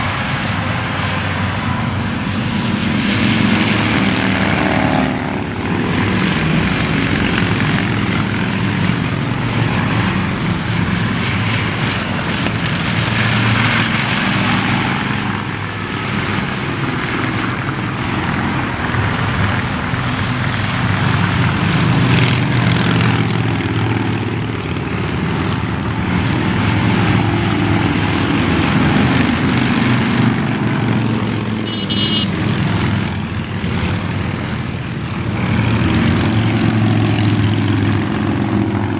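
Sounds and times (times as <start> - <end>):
motorcycle engines droning: 0.0 - 38.9
road noise: 0.0 - 38.9.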